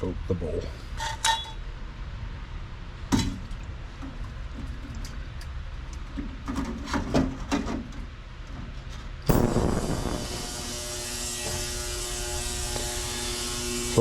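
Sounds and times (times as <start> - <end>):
ultrasonic cleaner buzzing: 9.3 - 14.0.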